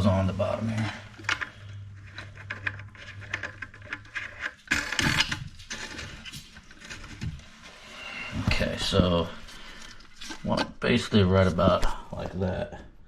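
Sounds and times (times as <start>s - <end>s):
plastic clicks and rattles: 1.2s - 7.4s.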